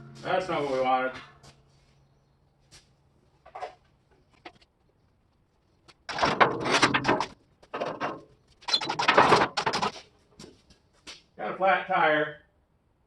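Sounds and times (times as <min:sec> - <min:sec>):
steel frame scraping and rattling: 0:06.1 - 0:10.2.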